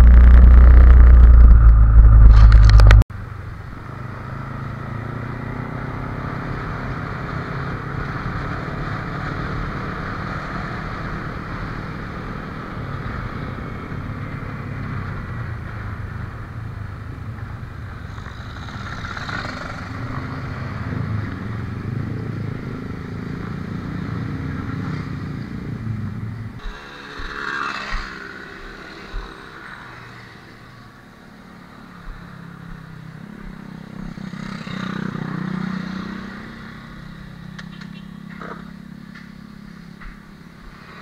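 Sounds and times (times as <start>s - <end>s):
motorcycle engine: 0.0s - 3.0s, 26.6s - 30.4s
wind noise: 0.0s - 3.1s.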